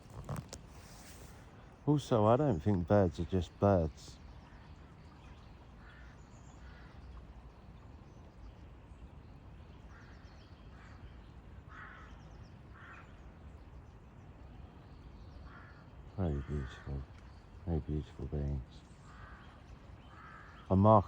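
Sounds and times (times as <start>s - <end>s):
distant birds calling: 0.0s - 21.0s.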